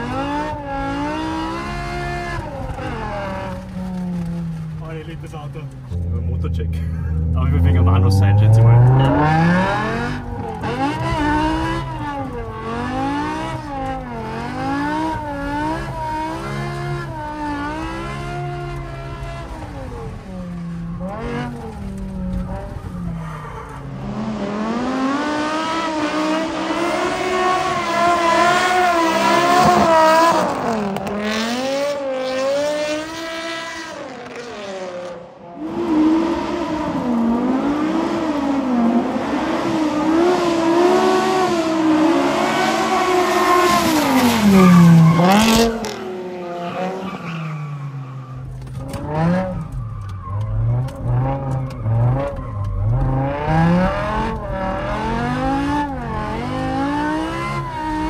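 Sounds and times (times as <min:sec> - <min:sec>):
car engine revving hard: 0:06.6 - 0:20.2, 0:23.8 - 0:47.2, 0:50.4 - 0:58.0.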